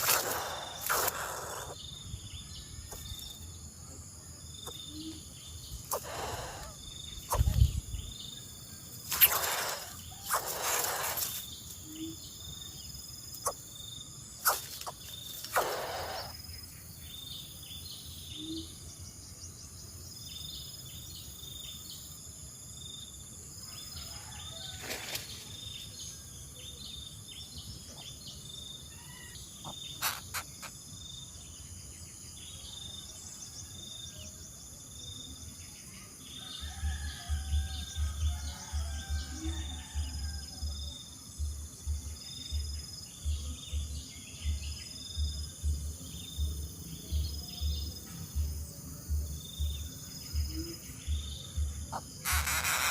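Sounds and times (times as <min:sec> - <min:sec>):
faint bird calls: 0:00.0 - 0:01.9, 0:04.6 - 0:08.1, 0:09.1 - 0:12.2, 0:14.4 - 0:16.7, 0:28.8 - 0:30.8
short high insect chirps: 0:00.0 - 0:03.6, 0:04.5 - 0:18.7, 0:28.0 - 0:31.3, 0:44.5 - 0:52.9
insects trilling: 0:00.0 - 0:52.9.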